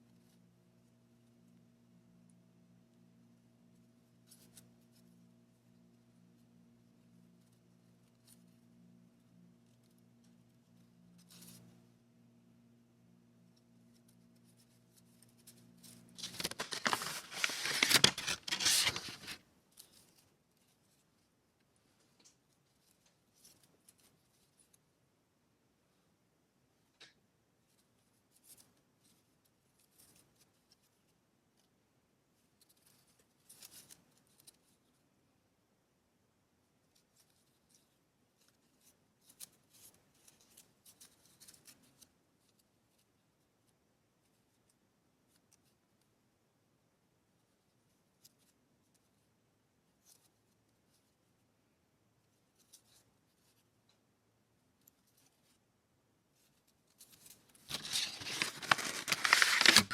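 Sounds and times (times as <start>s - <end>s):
paper rustling: 14.0s - 21.0s, 56.4s - 59.9s
scissors snipping paper: 16.2s - 19.4s, 57.2s - 59.9s.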